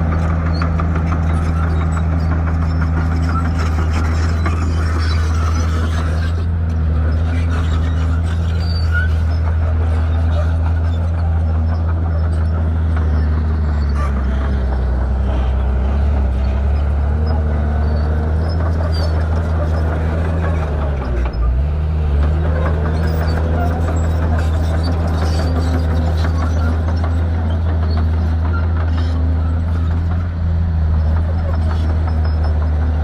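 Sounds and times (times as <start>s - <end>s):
bulldozer diesel engine running: 0.0s - 33.0s.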